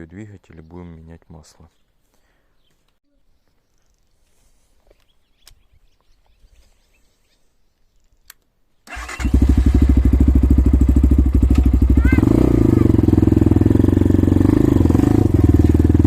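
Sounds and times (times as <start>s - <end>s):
small clicks: 8.0s - 8.5s
motorcycle engine starting and idling: 8.8s - 16.0s.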